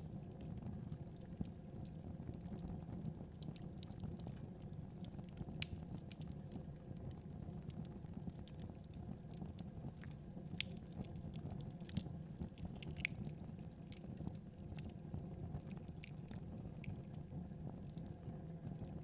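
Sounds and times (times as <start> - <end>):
wood fire crackling: 0.2 - 19.0.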